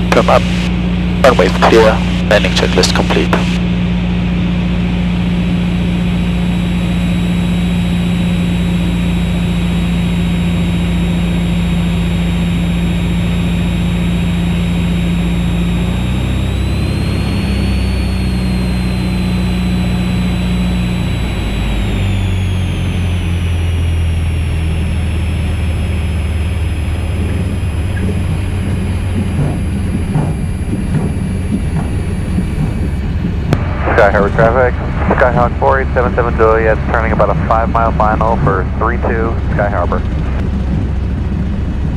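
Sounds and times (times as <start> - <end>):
piston engine and propeller: 0.0 - 41.9.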